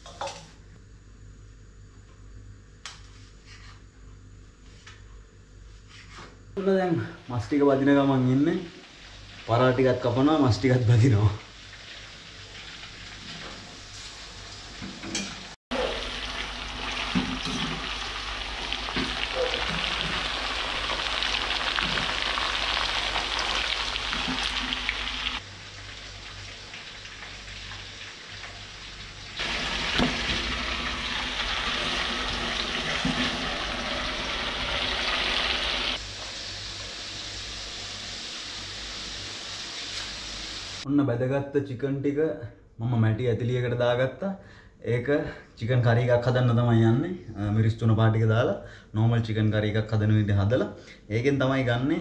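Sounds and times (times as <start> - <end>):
chicken deep-frying in oil: 7.5 - 40.9.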